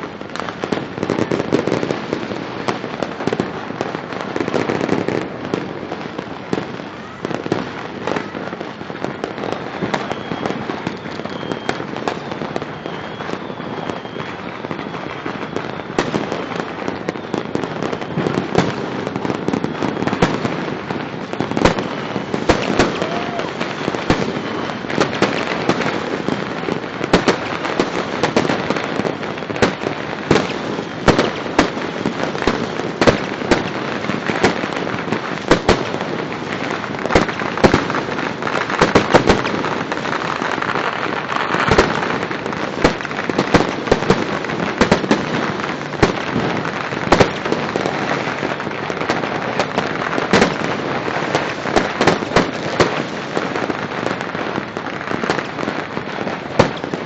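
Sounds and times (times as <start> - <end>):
fireworks crackling: 0.0 - 57.0
sharp firework bangs: 0.0 - 57.0.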